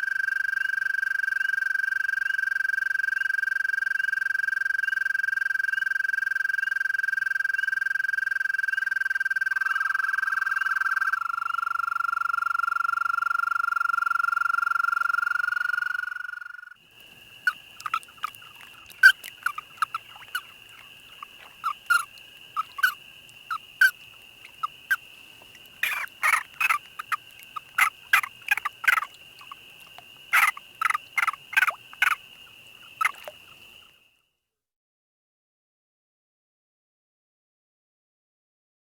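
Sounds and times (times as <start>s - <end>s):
frogs clucking: 7.1s - 34.0s
frog trilling: 16.4s - 33.8s.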